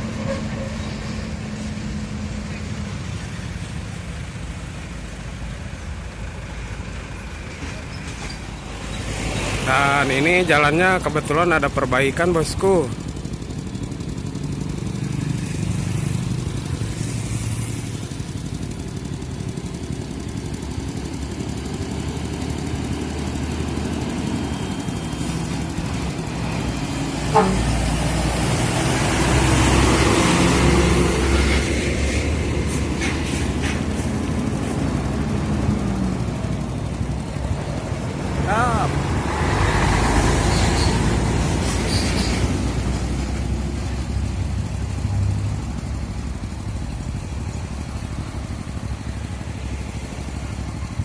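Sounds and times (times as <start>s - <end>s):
diesel truck engine running: 0.0s - 51.0s
tyre and road noise: 0.0s - 51.0s.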